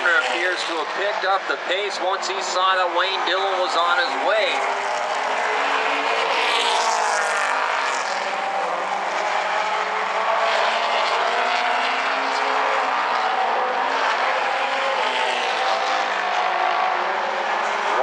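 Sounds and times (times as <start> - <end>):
race car engines passing: 0.0 - 18.0.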